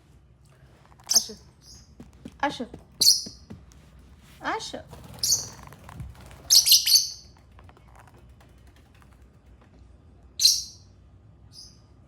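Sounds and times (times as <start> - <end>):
lovebirds chirping: 1.1 - 2.0, 3.0 - 3.5, 5.1 - 5.6, 6.5 - 7.3, 10.4 - 10.9.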